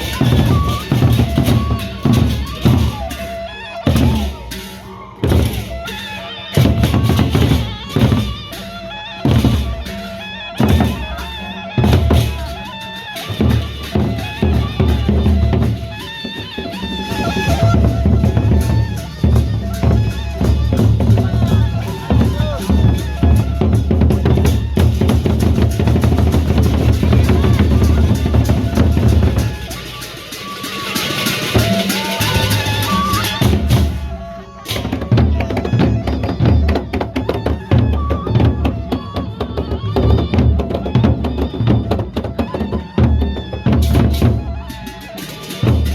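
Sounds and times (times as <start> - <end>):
band music: 0.0 - 36.6.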